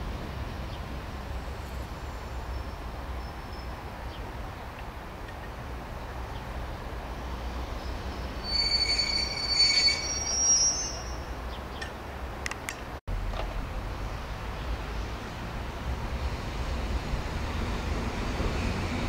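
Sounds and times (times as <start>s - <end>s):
train rumble: 0.0s - 19.0s
metal-on-metal squeal: 8.4s - 11.3s.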